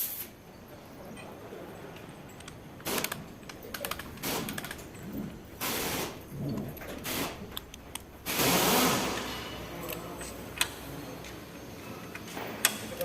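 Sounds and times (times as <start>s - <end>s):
sharp metallic clicks: 2.3s - 11.4s.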